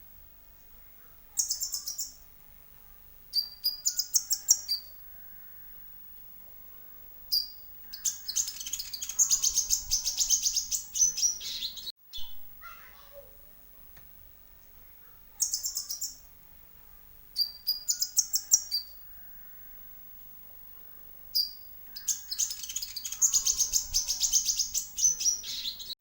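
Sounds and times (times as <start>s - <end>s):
sunbirds chirping in trilled bouts: 0.6s - 2.3s, 3.0s - 5.8s, 7.3s - 12.4s, 14.7s - 19.9s, 20.9s - 26.0s.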